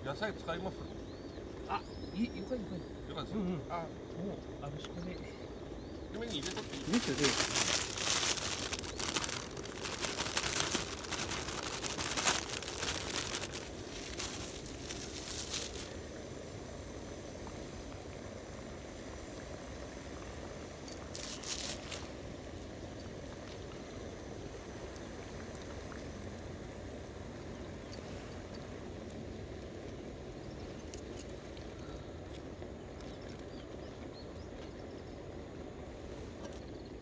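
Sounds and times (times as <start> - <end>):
pot cooking on stove hissing: 0.0 - 37.0
plastic packaging crinkling: 6.2 - 16.0, 21.1 - 22.2.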